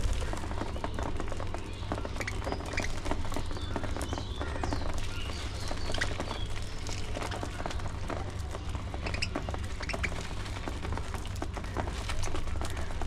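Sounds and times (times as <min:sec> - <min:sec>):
low rumble: 0:00.0 - 0:05.6
budgerigars chirping and chattering: 0:00.2 - 0:07.5, 0:08.9 - 0:10.2.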